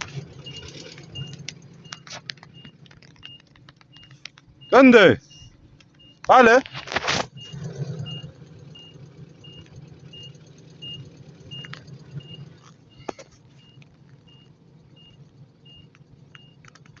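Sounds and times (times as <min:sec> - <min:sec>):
electronic warning beeper: 0:00.3 - 0:06.6, 0:07.3 - 0:14.4.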